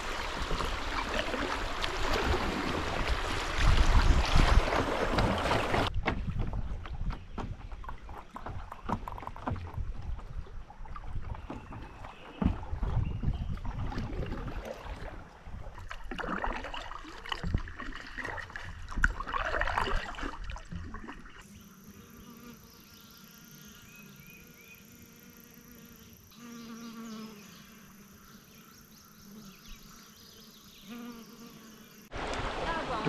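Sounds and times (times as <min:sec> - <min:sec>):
wind on microphone: 0:00.0 - 0:15.9
fly buzzing: 0:21.4 - 0:32.1.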